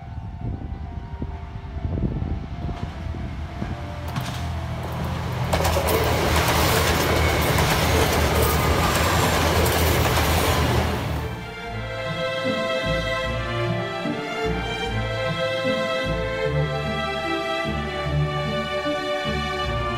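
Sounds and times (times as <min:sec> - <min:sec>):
wheels rumbling on rails: 0:00.0 - 0:11.8
diesel train engines running: 0:00.2 - 0:18.8.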